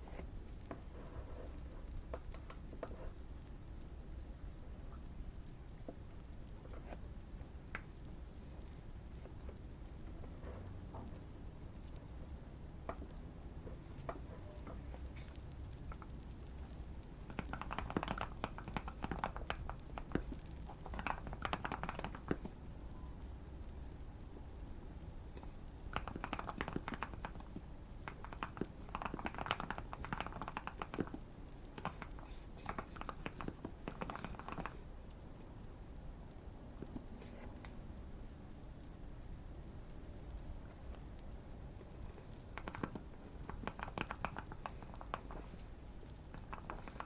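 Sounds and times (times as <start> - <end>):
fireplace crackle: 0.0 - 47.0
mechanical keyboard typing: 17.3 - 22.5, 25.9 - 34.8, 42.5 - 45.5.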